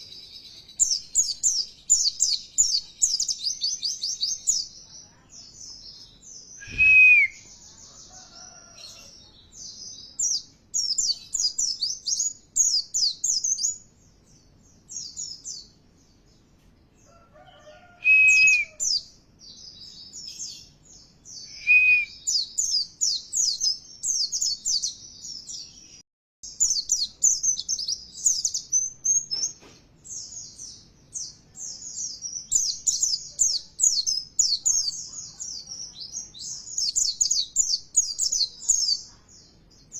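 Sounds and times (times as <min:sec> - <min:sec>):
short whistled notes: 0:06.6 - 0:07.4.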